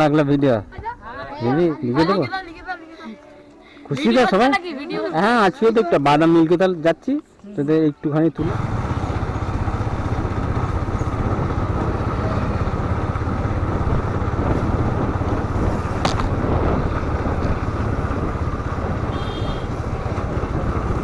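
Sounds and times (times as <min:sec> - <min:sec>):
motorcycle engine rumble: 0:08.4 - 0:21.0
wind noise on microphone: 0:10.3 - 0:21.0.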